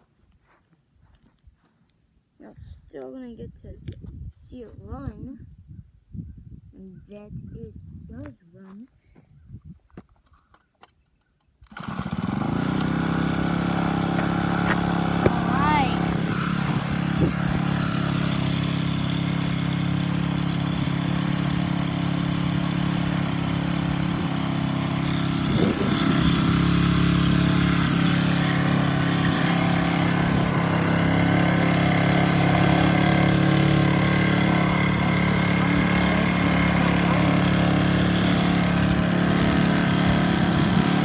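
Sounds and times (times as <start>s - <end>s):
pit bike engine idling: 11.8s - 41.0s.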